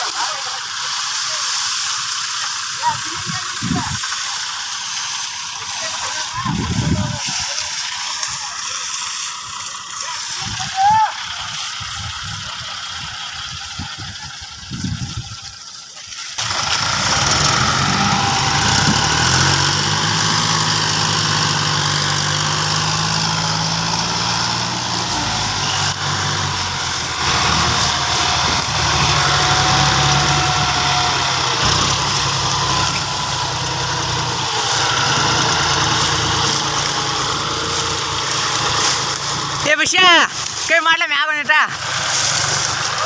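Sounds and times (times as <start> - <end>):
diesel tractor engine running: 0.0 - 43.0.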